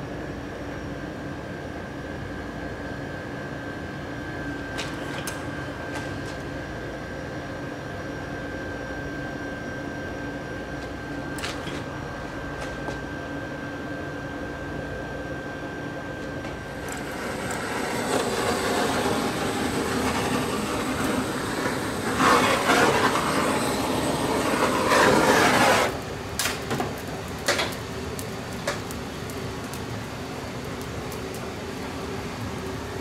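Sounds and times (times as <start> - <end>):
fire crackles: 16.3 - 33.0
straw fire rushing: 16.6 - 33.0.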